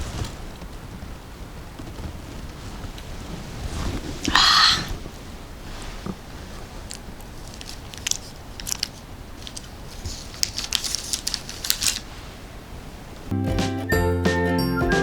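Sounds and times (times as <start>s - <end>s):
crisp crunches: 6.6s - 12.1s
music: 13.3s - 15.0s.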